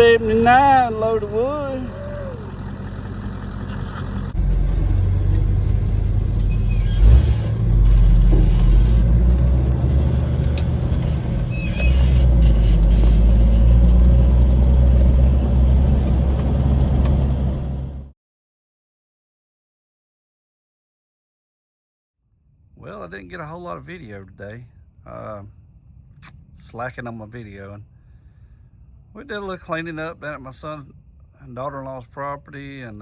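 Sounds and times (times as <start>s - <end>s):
truck engine droning: 0.0s - 18.1s.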